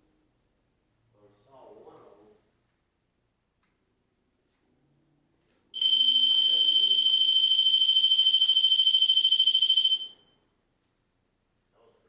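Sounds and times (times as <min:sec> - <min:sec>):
shrill high-pitched alarm tone: 0:05.8 - 0:10.3.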